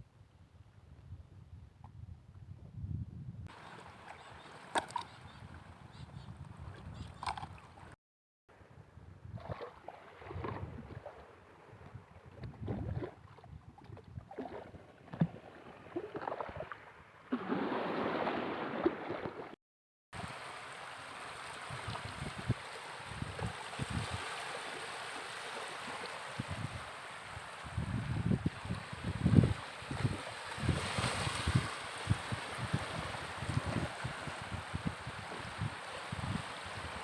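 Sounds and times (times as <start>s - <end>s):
surf washing: 3.5s - 5.1s, 20.2s - 37.0s
shallow seawater sloshing: 3.5s - 5.8s, 9.4s - 19.6s, 20.4s - 27.7s, 28.5s - 37.0s.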